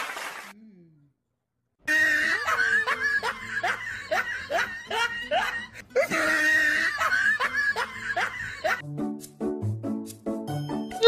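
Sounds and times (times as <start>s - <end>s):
person laughing: 1.9s - 8.8s.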